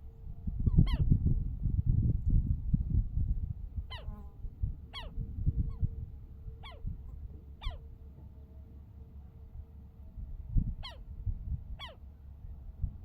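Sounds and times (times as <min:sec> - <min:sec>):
bird calling: 0:04.9 - 0:05.9, 0:06.6 - 0:06.9, 0:07.6 - 0:07.8, 0:10.8 - 0:11.0, 0:11.8 - 0:12.0.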